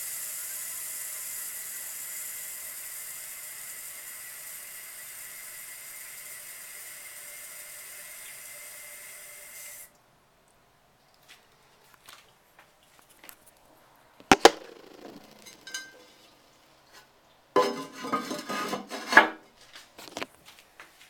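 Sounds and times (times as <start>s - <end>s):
sharp hard knocks: 14.3s - 15.6s
clattering: 14.3s - 16.3s.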